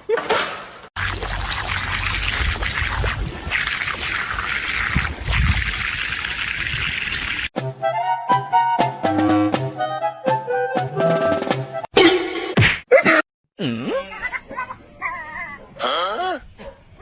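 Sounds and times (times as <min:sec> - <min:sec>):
running water splashing: 0:01.0 - 0:07.5.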